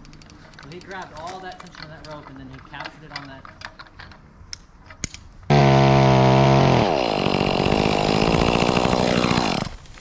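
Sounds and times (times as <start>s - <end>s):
chainsaw running: 5.5s - 9.9s.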